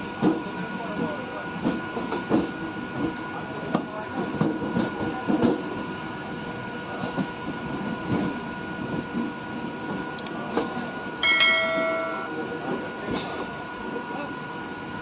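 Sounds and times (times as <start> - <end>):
train wheels clattering on rails: 0.1 - 6.0, 6.9 - 12.3, 13.0 - 13.6.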